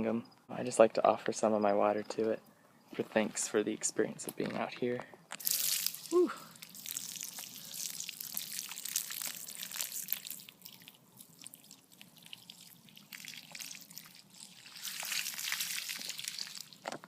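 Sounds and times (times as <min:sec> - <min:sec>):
water splattering on the ground: 0:05.4 - 0:16.9.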